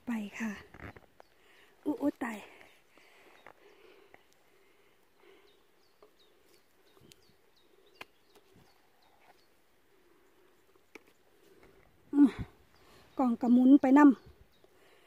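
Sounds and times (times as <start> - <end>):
small bird chirping: 5.1 - 11.6.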